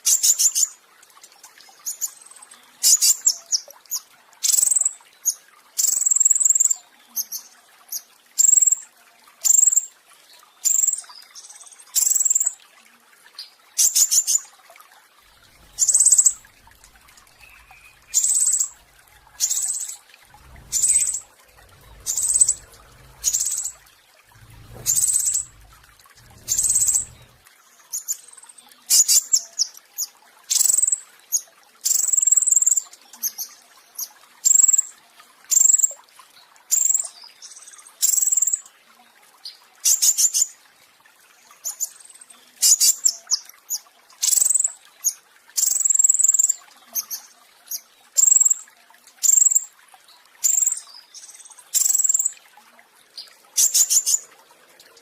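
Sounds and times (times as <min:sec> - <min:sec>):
songbird singing high bursts: 0:17.2 - 0:21.3.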